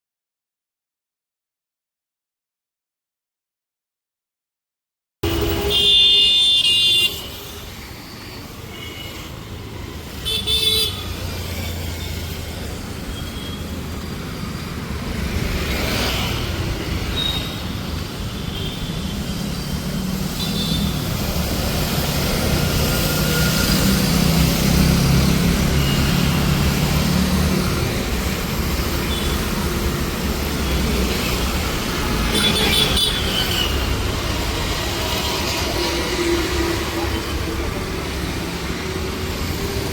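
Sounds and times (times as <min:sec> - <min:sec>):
vehicle horns honking: 0:05.2 - 0:07.3
street traffic engines: 0:05.2 - 0:39.9.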